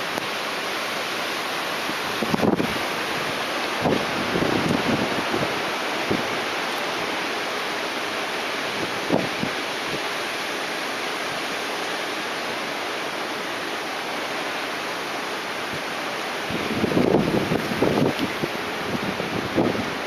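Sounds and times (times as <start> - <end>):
rain: 0.0 - 20.0
strong wind: 0.0 - 20.0
wind gust buffeting microphone: 1.8 - 6.5, 8.7 - 9.6, 16.4 - 20.0.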